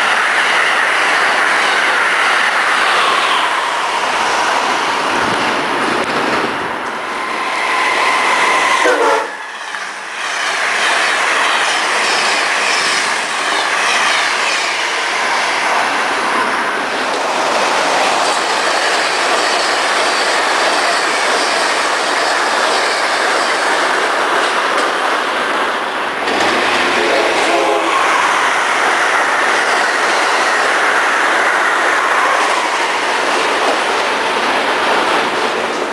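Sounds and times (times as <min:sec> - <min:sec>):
train wheels rushing on rails: 0:00.0 - 0:35.9
train horn: 0:08.1 - 0:09.6.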